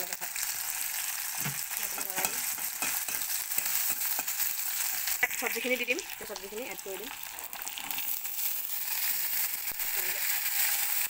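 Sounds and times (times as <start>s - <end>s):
onions sizzling in hot oil: 0.0s - 11.0s
spatula scraping a pan: 1.9s - 5.7s.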